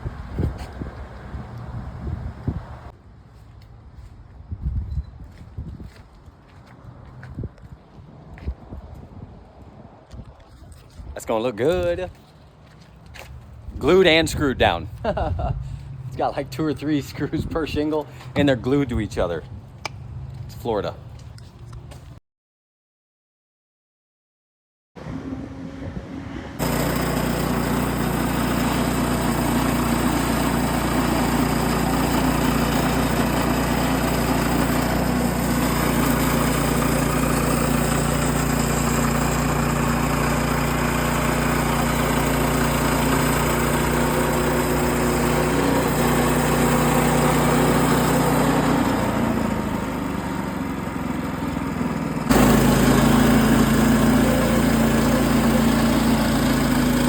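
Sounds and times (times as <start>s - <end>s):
small engine droning: 0.0s - 2.9s, 25.0s - 57.0s.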